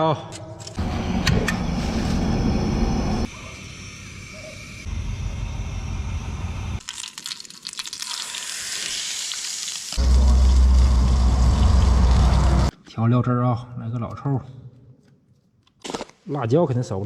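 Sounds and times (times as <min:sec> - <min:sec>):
low rumble: 0:00.8 - 0:03.3, 0:10.0 - 0:12.7
food sizzling in a frying pan: 0:06.8 - 0:10.9.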